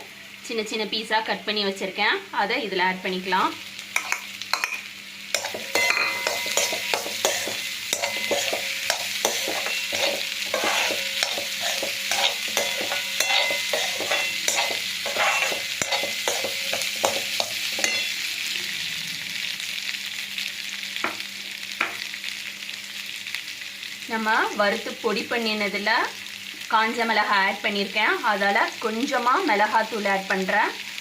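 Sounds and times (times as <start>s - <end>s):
oil sizzling: 2.9s - 31.0s
spoon scraping and knocking pan: 4.0s - 18.2s.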